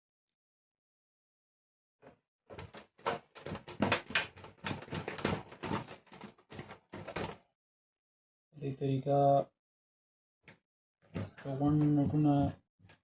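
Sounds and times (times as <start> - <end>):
clicks and rattles of heater parts: 2.5 - 7.4.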